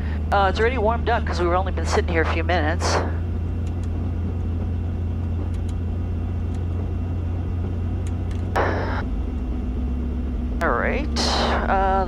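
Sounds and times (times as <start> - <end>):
helicopter engine and rotor idling: 0.0 - 12.0
faint clicks: 3.6 - 4.5, 5.3 - 5.8, 6.4 - 6.8, 8.0 - 8.6.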